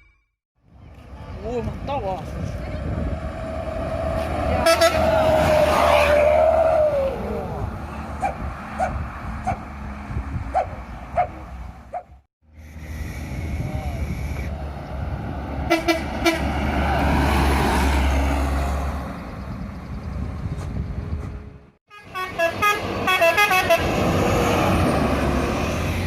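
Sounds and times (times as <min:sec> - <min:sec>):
heavy vehicle engine rumble: 0:00.6 - 0:26.0
vehicle horn toots: 0:04.6 - 0:05.1, 0:15.7 - 0:16.6, 0:21.9 - 0:24.0.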